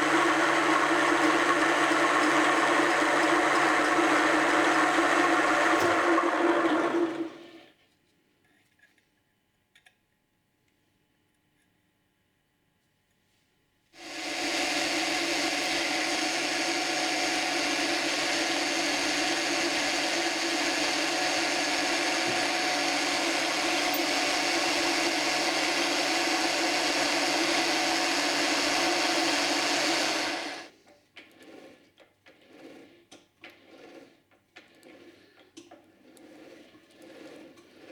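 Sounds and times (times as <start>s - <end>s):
power tool running: 0.0s - 7.6s, 14.0s - 30.7s.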